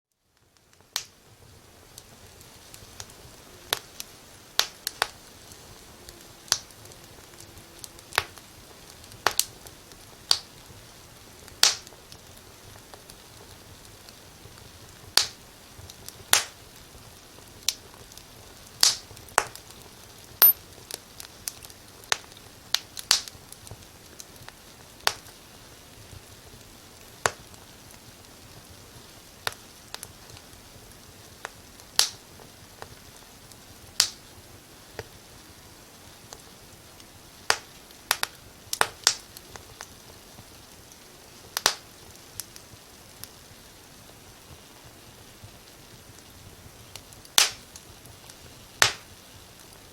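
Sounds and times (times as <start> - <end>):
wood fire crackling: 0.2 - 49.9.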